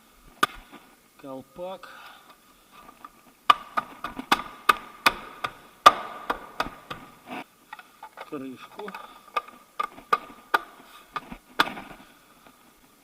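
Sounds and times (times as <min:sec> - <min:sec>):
plastic wheel cover snapping: 0:03.0 - 0:07.1, 0:07.8 - 0:12.0.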